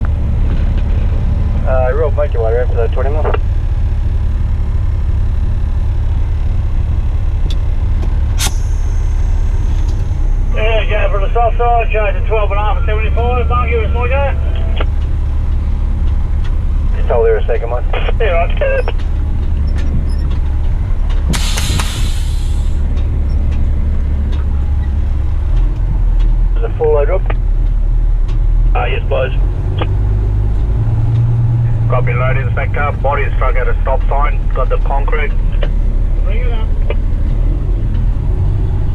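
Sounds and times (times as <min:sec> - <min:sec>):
diesel engine low rumble: 0:00.0 - 0:38.9
compressed air hiss: 0:08.4 - 0:10.1, 0:21.3 - 0:22.8.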